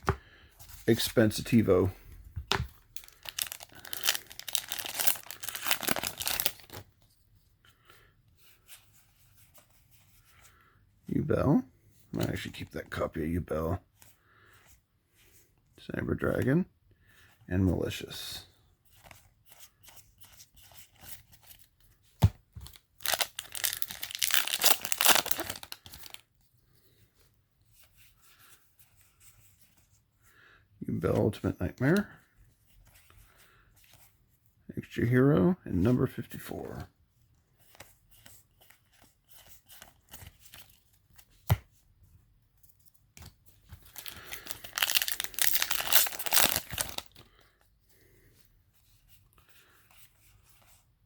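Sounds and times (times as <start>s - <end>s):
faint handling sounds: 0.0s - 51.0s
wrapper tearing and crinkling: 2.8s - 6.8s, 23.0s - 26.2s, 43.8s - 47.2s.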